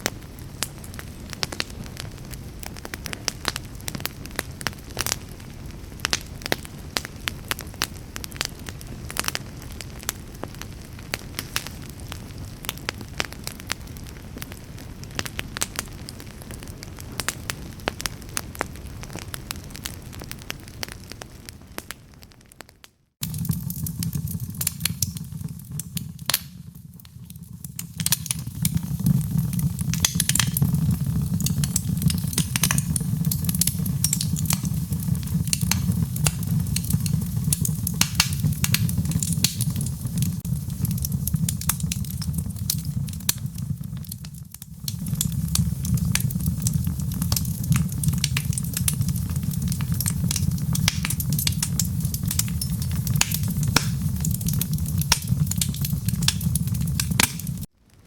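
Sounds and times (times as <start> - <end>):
low fire rumble: 0.0 - 22.6, 23.2 - 58.0
fire crackling and popping: 0.0 - 58.0.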